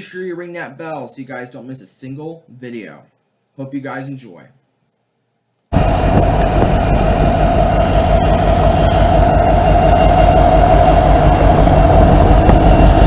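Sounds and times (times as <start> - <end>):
high wheel squeal: 5.8 - 13.0
train wheels rumbling on rails: 5.8 - 13.0.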